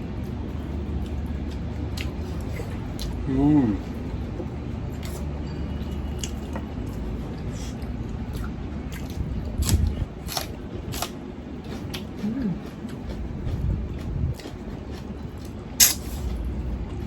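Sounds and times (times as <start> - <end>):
chewing and biting: 4.9 - 17.0.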